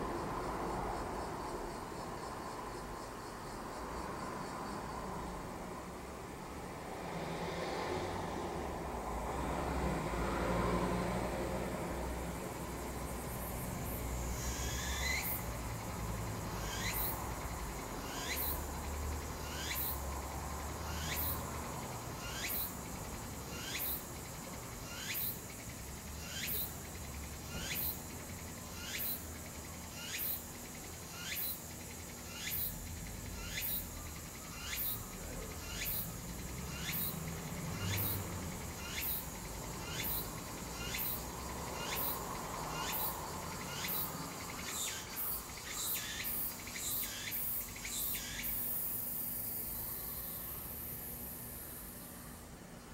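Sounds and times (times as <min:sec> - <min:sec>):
cicada high falling call: 0:12.2 - 0:52.4.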